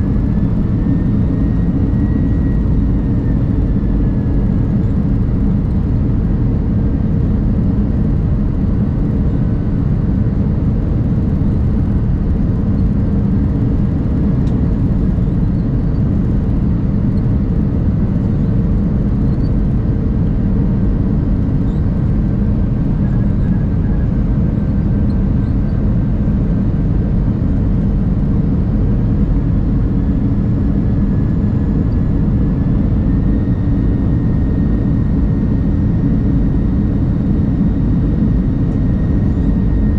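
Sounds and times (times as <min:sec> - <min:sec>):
jet engine cabin drone: 0:00.0 - 0:39.9.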